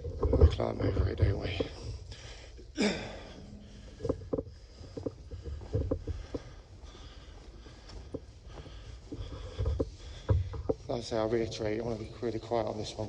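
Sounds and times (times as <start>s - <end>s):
knocks and scuffs of climbing: 3.3s - 13.0s.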